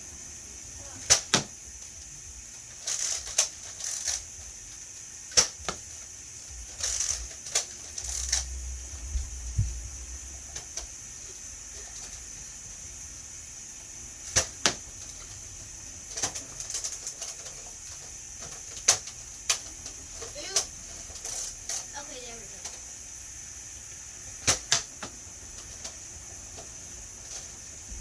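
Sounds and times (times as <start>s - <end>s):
toy blaster firing darts: 1.0s - 1.6s, 2.7s - 4.4s, 5.3s - 6.0s, 14.2s - 15.4s, 18.4s - 19.7s, 24.4s - 25.1s.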